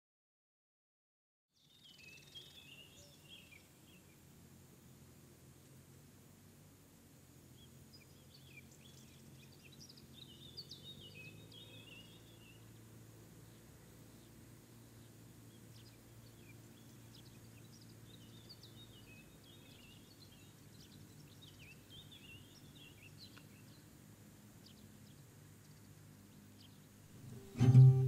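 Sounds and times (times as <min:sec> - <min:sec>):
small birds chirping: 0:01.5 - 0:05.9, 0:06.6 - 0:28.0
low steady hum: 0:26.9 - 0:28.0.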